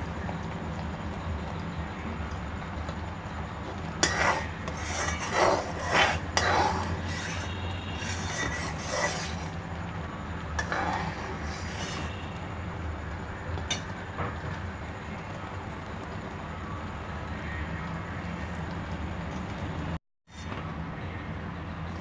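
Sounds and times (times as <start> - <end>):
steady low hum: 0.0 - 18.7
ladle scraping a pan: 4.0 - 9.7, 10.6 - 12.4.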